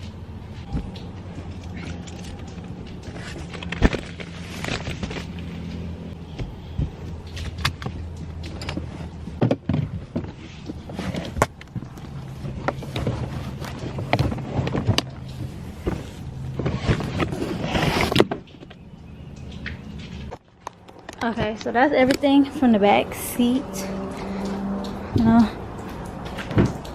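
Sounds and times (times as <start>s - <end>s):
rustling: 0.0s - 18.8s.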